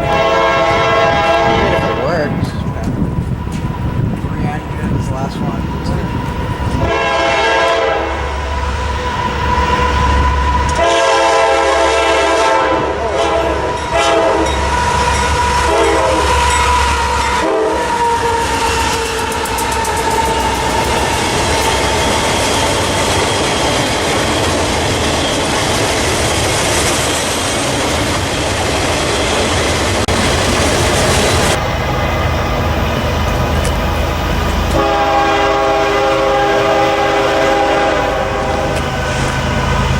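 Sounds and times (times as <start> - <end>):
train horn blasts: 0.0 - 2.9, 5.2 - 22.3, 31.5 - 39.9
train wheels clacking on rails: 0.0 - 11.3, 11.9 - 17.1, 17.9 - 39.9.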